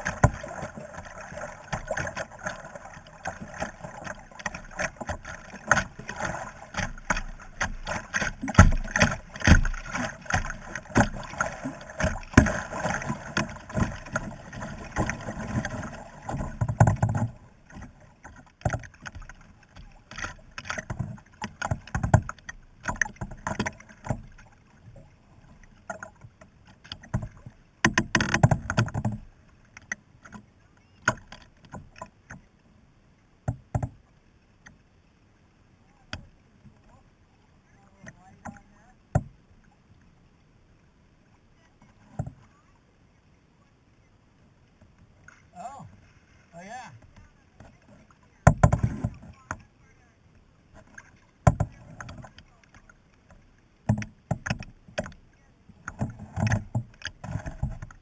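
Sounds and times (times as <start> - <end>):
paddle strokes splashing: 0.0 - 32.6, 41.2 - 58.0
sharp clicks and knocks: 3.2 - 14.3, 14.9 - 24.4, 25.8 - 30.4, 48.5 - 49.6, 50.8 - 55.2.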